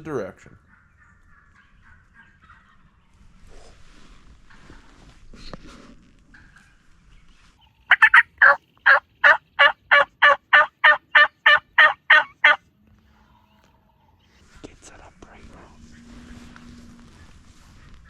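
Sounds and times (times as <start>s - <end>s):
turkey call yelps: 7.9s - 12.6s.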